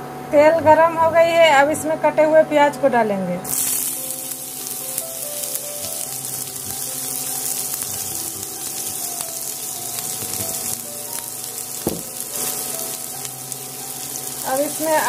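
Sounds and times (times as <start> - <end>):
onions sizzling in hot oil: 3.5 - 15.0.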